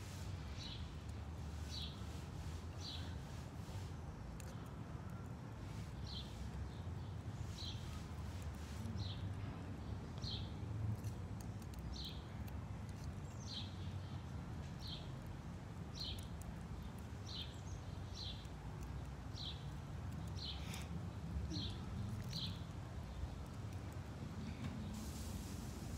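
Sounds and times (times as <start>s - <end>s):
squirrel cracking seeds: 4.2s - 6.8s, 10.1s - 24.5s
bird chirping: 16.0s - 20.9s, 21.5s - 23.4s.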